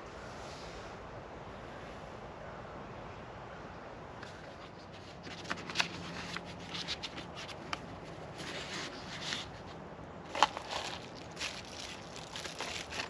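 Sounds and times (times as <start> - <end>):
packaging rustling: 4.9 - 13.0.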